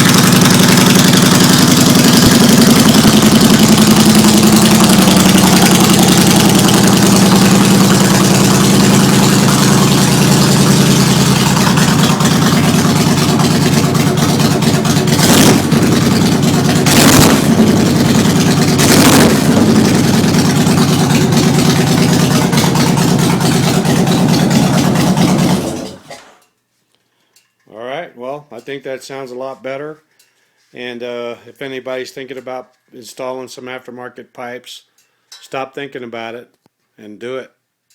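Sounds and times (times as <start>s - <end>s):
motorcycle engine idling: 0.0s - 26.1s
engine revving: 0.0s - 26.2s.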